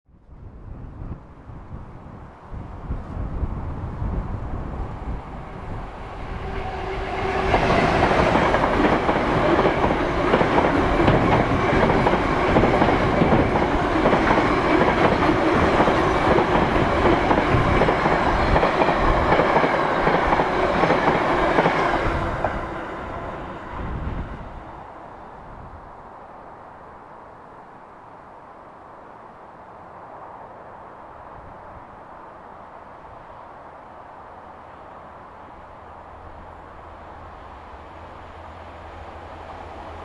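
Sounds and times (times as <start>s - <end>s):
diesel locomotive engine passing: 0.7s - 27.2s, 29.2s - 40.0s
freight wagons rumbling on rails: 2.7s - 24.6s.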